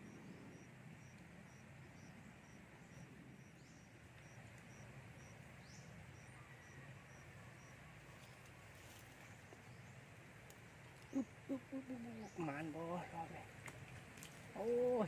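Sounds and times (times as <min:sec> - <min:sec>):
high insect chirp: 0:00.0 - 0:07.8
low steady rumble: 0:00.0 - 0:14.5.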